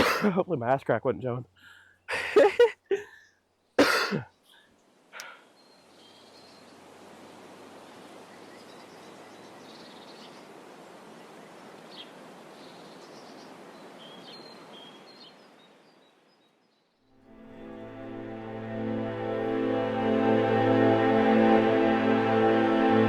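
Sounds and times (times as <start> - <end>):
steady background hiss: 4.8 - 16.0.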